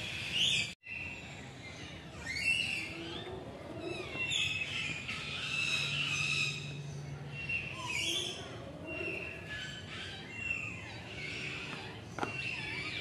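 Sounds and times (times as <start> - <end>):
birds calling: 0.0 - 13.0
steady low hum: 3.2 - 12.2.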